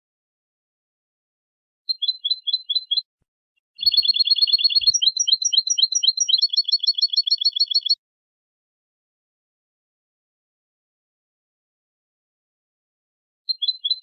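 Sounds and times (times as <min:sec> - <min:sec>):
bird song trills: 0:01.9 - 0:03.1, 0:03.7 - 0:08.0, 0:13.5 - 0:14.0.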